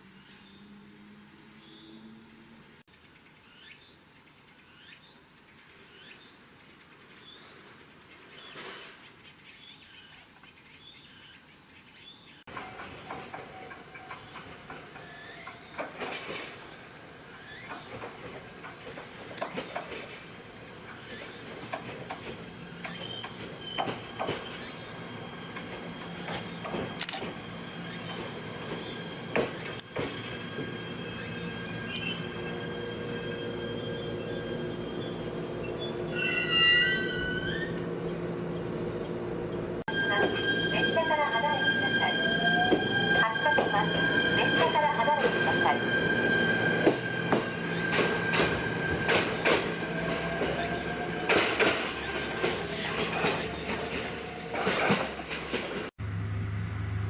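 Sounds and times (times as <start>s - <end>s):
brake squeals: 12.5s - 55.9s
electric train running: 12.5s - 57.0s.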